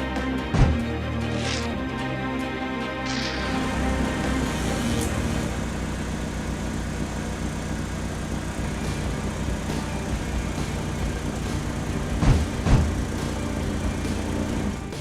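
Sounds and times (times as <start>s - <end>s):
vehicle engine idling: 3.1s - 15.0s.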